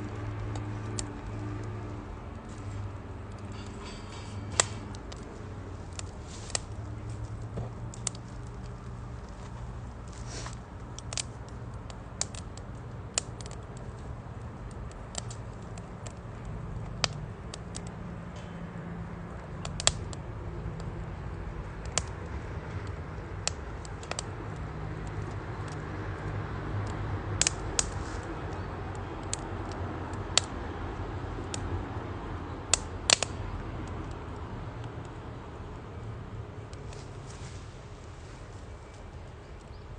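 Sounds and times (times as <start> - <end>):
steady low rush: 0.0 - 28.6
wood fire crackling and popping: 0.0 - 39.9.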